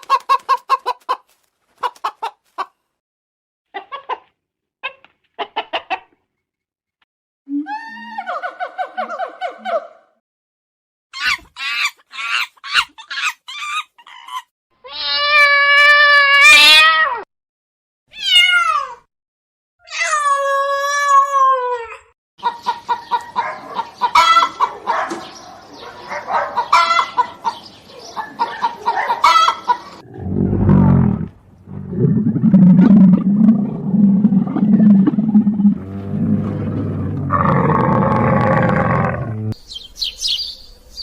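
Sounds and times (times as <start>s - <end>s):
falling animal calls: 29.3s - 39.6s
drawn-out pitched animal call: 30.0s - 39.6s
low rumbling growl: 30.0s - 39.6s.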